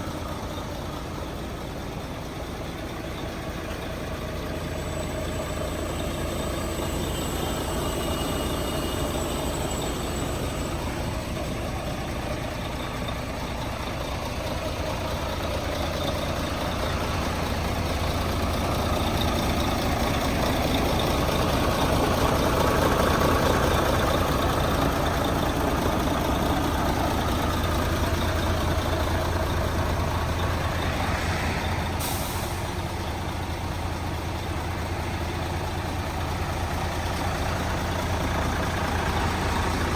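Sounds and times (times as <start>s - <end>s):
truck diesel engine running: 0.0s - 39.9s
air brake hiss: 6.7s - 11.2s, 30.6s - 33.1s.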